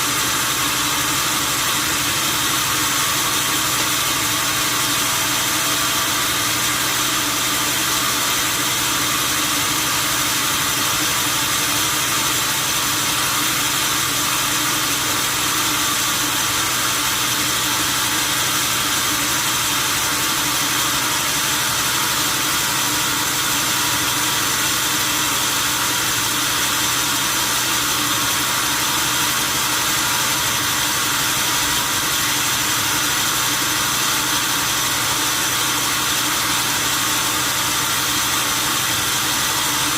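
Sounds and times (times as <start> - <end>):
loud machine hiss: 0.0 - 39.9.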